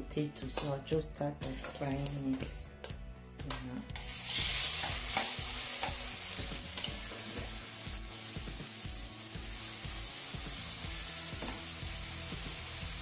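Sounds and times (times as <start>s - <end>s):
potatoes sizzling in oil: 4.0s - 13.0s.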